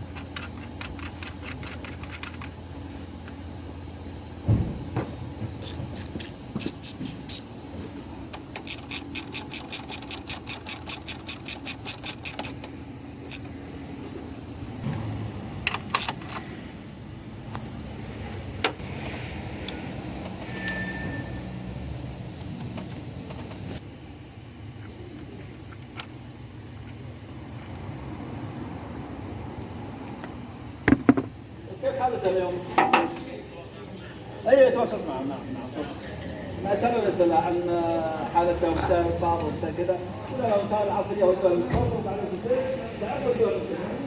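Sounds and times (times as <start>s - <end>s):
hand ratchet clicking: 0.0s - 2.6s, 5.6s - 7.5s, 8.3s - 13.6s, 15.7s - 16.4s
steady low hum: 0.0s - 20.4s.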